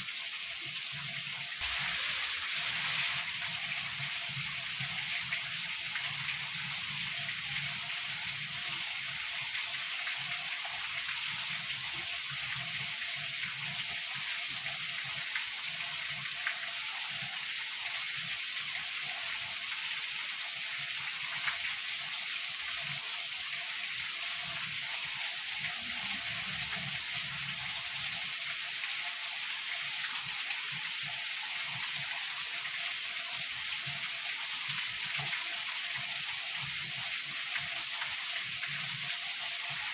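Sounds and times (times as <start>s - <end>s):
heavy rain falling: 1.6s - 3.2s.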